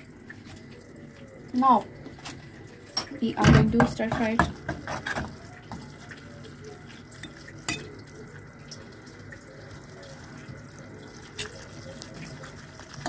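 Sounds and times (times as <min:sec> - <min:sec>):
noodles sizzling in a saucepan: 0:00.0 - 0:13.0
metal fork clinking on pot: 0:07.2 - 0:08.0.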